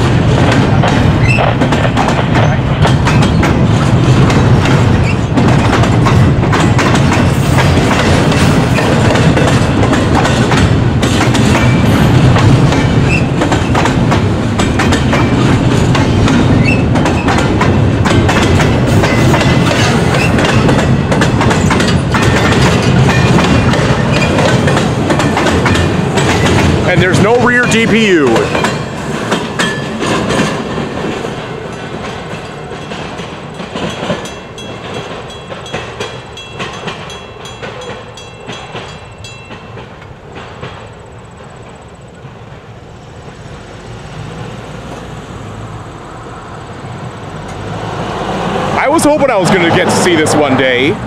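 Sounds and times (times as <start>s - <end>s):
wheels clacking over rail joints: 0.0s - 43.5s
freight train rumble: 0.0s - 51.0s.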